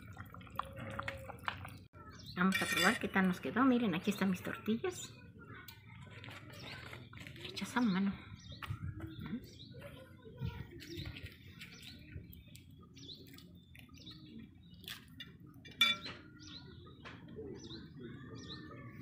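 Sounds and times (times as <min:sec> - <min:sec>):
small birds chirping: 0:00.0 - 0:19.0
metal spoon clinking on bowl: 0:02.5 - 0:03.0, 0:15.7 - 0:16.1.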